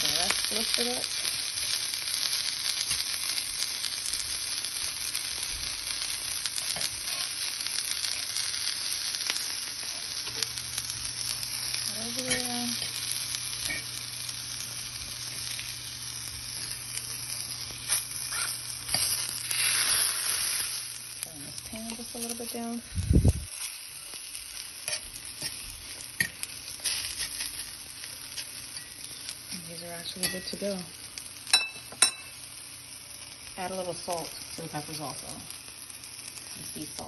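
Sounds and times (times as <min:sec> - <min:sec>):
vegetables sizzling in hot oil: 0:00.0 - 0:37.0
tongs knocking on pan: 0:13.6 - 0:13.9, 0:31.5 - 0:32.3.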